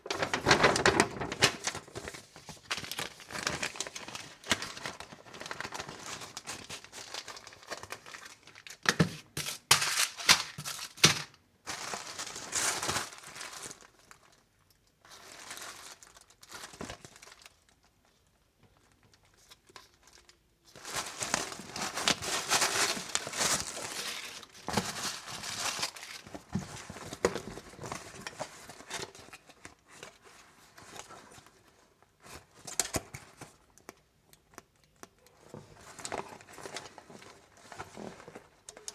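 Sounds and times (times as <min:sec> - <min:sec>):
packaging crinkling and tearing: 0:00.0 - 0:17.8, 0:18.8 - 0:30.2.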